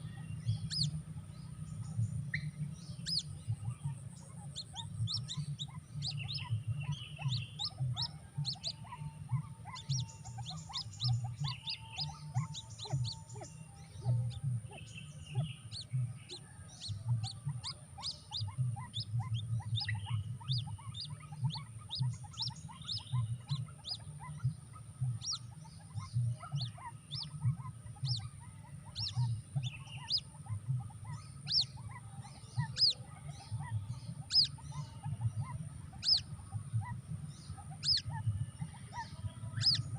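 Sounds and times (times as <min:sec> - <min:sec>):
bird chirping high peeps: 0:00.0 - 0:39.9
steady low hum: 0:00.0 - 0:39.9.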